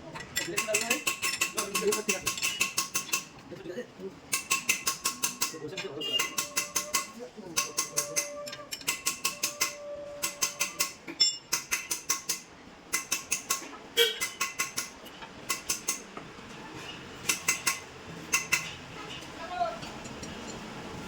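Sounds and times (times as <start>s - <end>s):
ratchet wrench clicking: 0.4s - 3.3s, 4.3s - 5.6s, 6.2s - 16.0s, 17.3s - 18.7s.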